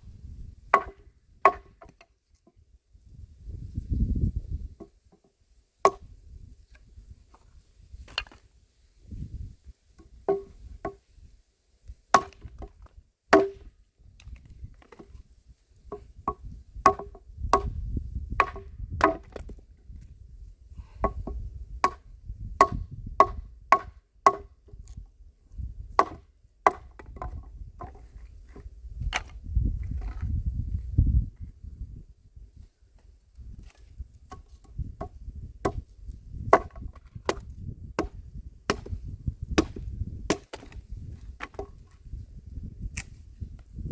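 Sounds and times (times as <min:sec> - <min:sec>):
axe chopping wood: 0:00.7 - 0:02.0, 0:05.9 - 0:06.1, 0:10.0 - 0:11.0, 0:12.1 - 0:13.7, 0:15.9 - 0:19.6, 0:21.0 - 0:22.0, 0:22.6 - 0:25.0, 0:25.9 - 0:29.4, 0:34.3 - 0:40.8, 0:41.4 - 0:41.8.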